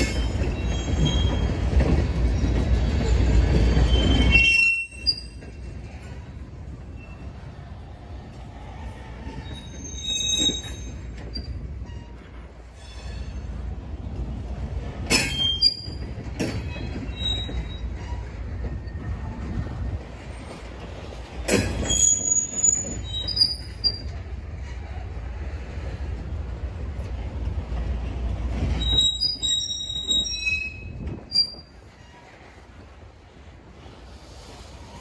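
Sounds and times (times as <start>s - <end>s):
wheel squeals: 0.0s - 5.6s, 9.2s - 13.4s, 15.1s - 19.1s, 21.5s - 24.2s, 28.7s - 32.5s
train clanks: 0.0s - 35.0s
train wheels rumbling on rail: 0.0s - 35.0s.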